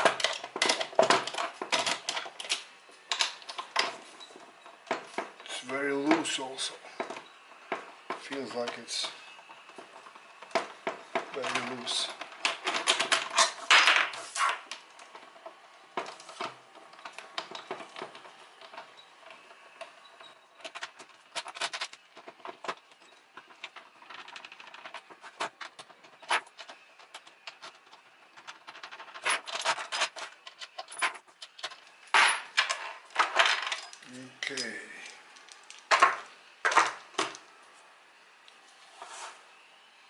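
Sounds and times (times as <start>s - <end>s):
small parts clicking and rattling: 0.0s - 37.6s
brief scraping: 38.8s - 39.5s.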